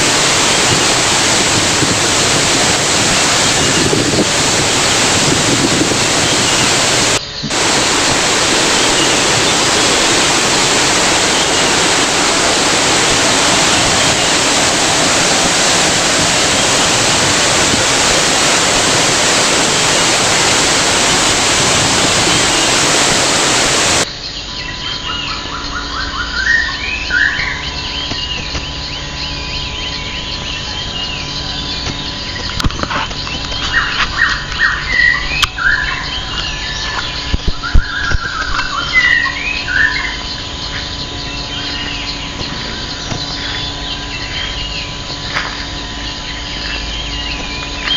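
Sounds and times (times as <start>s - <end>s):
waterfall running: 0.0s - 24.1s
birds chirping: 0.0s - 47.9s.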